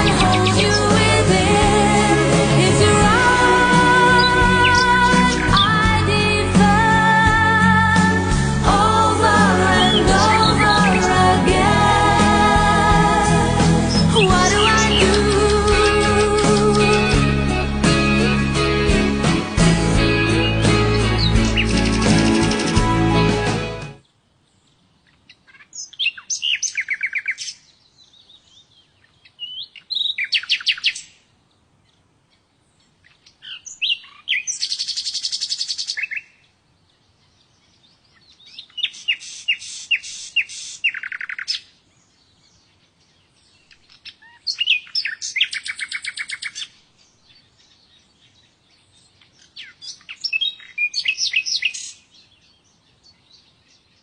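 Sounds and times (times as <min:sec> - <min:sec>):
songbird trilling and chirping: 0:13.9 - 0:17.1, 0:25.0 - 0:31.2, 0:33.0 - 0:54.0.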